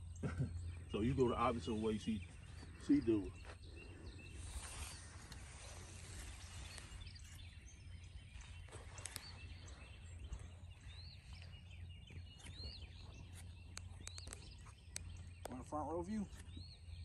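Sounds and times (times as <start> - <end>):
birds chirping: 0.0 - 17.0
sharp clicks: 13.3 - 16.6.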